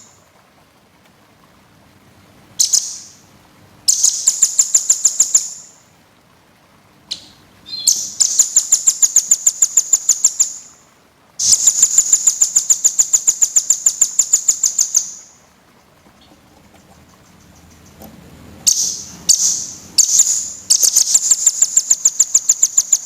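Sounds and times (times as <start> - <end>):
songbird high-pitched trills: 2.6 - 3.2, 3.9 - 5.8, 7.1 - 10.8, 11.4 - 15.5, 18.6 - 23.0.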